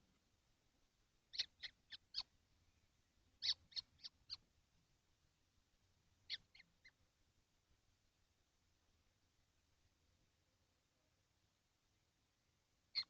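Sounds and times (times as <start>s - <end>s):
kestrels calling: 1.3s - 2.3s, 3.4s - 4.4s, 6.2s - 7.0s.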